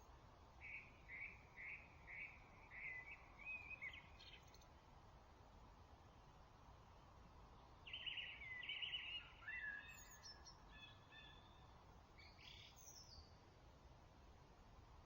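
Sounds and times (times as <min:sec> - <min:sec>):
low background hiss: 0:00.0 - 0:15.0.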